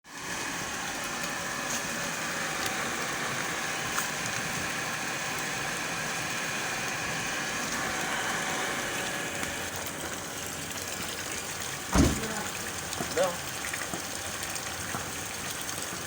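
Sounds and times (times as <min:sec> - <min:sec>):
water pump motor hum: 0:00.0 - 0:16.0
water rushing: 0:00.2 - 0:15.7.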